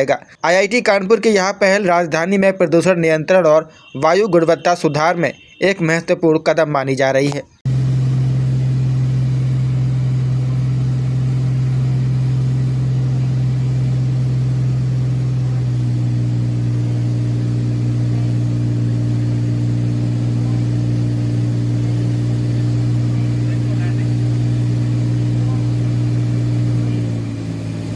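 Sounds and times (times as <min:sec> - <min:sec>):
light aircraft engine and propeller: 0:25.5 - 0:27.9.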